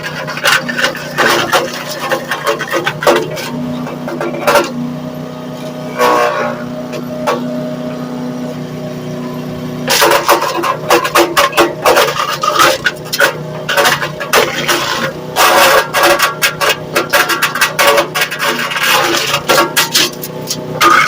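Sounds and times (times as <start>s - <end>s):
wood chipper engine running: 0.0s - 21.0s.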